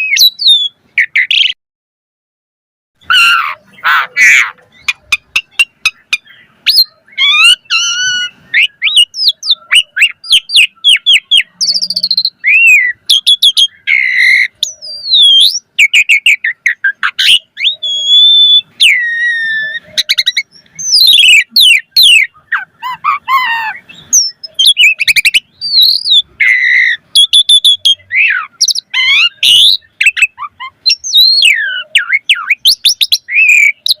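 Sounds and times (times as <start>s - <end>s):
starling singing: 0.0s - 1.6s, 3.0s - 34.0s.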